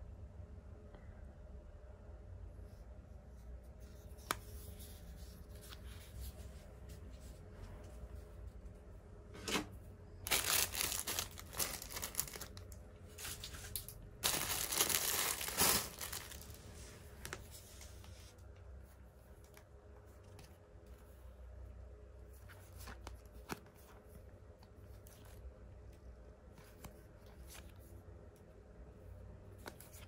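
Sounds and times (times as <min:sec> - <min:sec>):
plastic packaging tearing and crinkling: 0:10.3 - 0:16.6.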